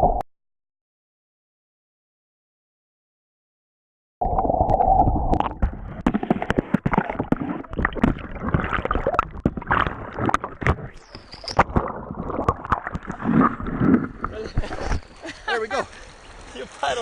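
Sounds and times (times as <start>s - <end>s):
water sloshing and gurgling: 4.2s - 16.8s
sharp splashes and knocks: 5.3s - 15.2s.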